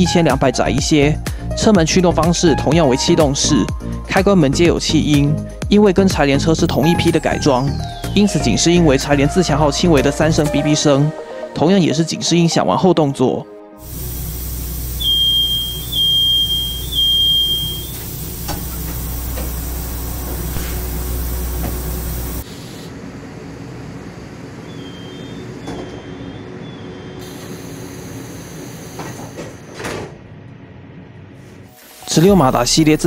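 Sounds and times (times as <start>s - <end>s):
train doors hissing shut: 13.8s - 22.9s, 27.0s - 30.2s
train hum: 13.9s - 31.9s
short high beeps: 15.0s - 18.1s.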